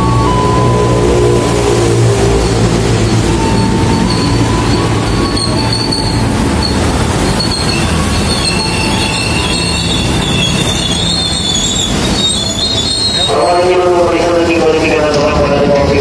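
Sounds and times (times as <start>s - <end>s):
electric train rumbling: 0.0s - 16.0s
wheel and brake squeals: 3.0s - 13.8s.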